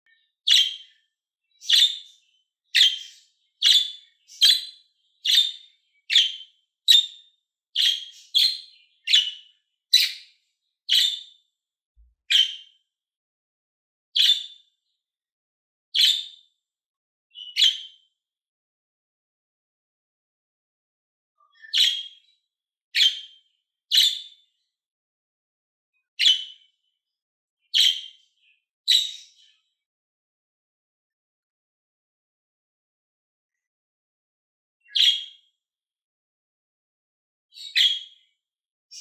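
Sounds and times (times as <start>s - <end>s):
budgerigar chirping: 0.5s - 0.9s, 1.6s - 2.2s, 2.8s - 7.2s, 7.8s - 10.3s, 10.9s - 11.3s, 12.3s - 12.6s, 14.2s - 14.5s, 21.6s - 22.2s, 23.0s - 23.3s, 27.7s - 28.1s, 28.9s - 29.4s, 34.9s - 35.3s, 37.6s - 38.1s.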